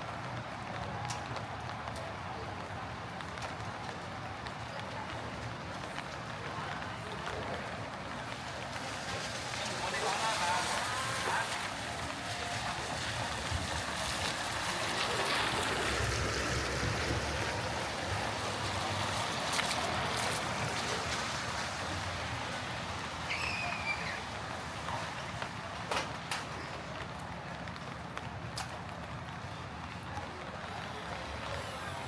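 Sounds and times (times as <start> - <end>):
rain on a wet street: 0.0 - 32.0
traffic rumble: 0.1 - 32.0
brief high squeak: 23.3 - 24.2.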